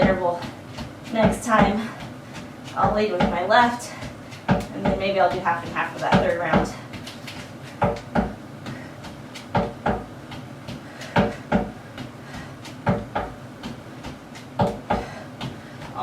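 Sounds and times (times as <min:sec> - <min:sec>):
feet thudding on box: 0:00.0 - 0:16.0.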